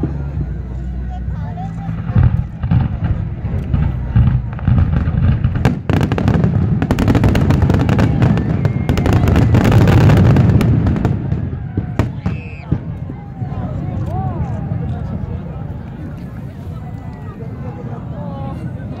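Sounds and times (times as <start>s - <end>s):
rumble of firework booms: 1.9s - 13.9s
sharp firework cracks: 2.1s - 13.0s.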